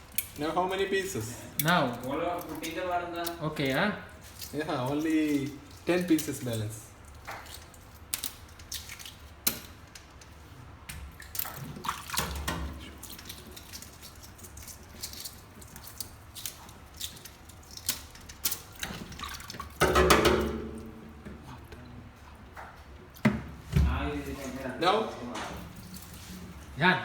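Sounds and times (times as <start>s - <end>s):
water dripping and splashing: 0.0s - 24.7s
kitchenware clinks and knocks: 19.8s - 21.0s.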